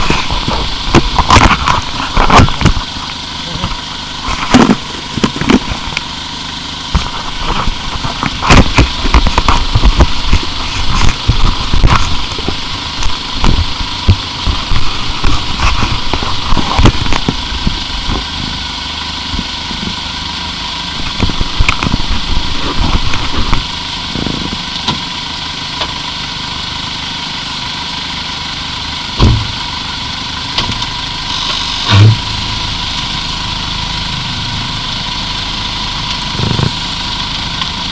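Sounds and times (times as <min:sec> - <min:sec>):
knocks and scraping grinds: 0:00.0 - 0:20.2, 0:20.8 - 0:26.1, 0:30.5 - 0:34.1, 0:34.8 - 0:37.9
car engine running: 0:00.0 - 0:37.9
heavy thumps: 0:29.2 - 0:29.6.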